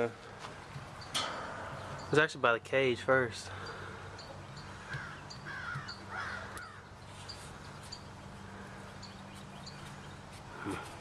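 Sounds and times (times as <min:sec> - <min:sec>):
harsh bird calls: 0:03.5 - 0:11.0.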